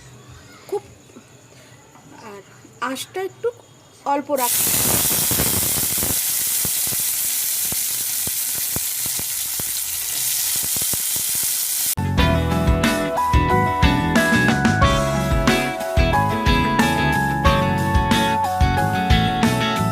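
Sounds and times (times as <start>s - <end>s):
corn kernels sizzling in oil: 4.4s - 12.0s.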